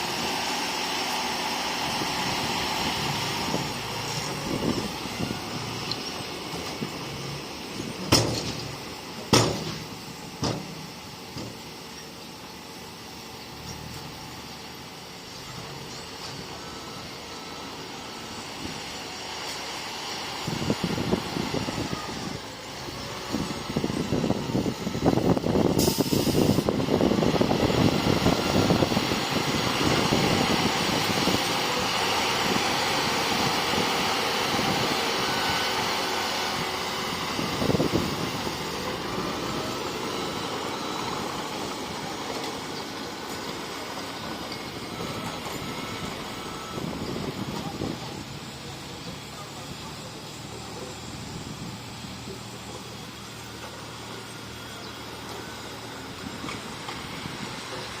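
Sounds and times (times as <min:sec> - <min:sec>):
heavy diesel machinery running: 0:00.0 - 0:58.0
short hiss: 0:25.8 - 0:26.6.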